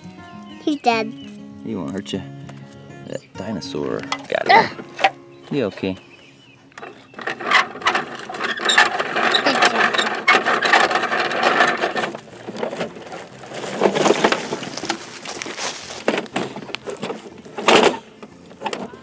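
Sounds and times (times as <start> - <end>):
toy gear mechanism clicking: 6.8 - 12.1.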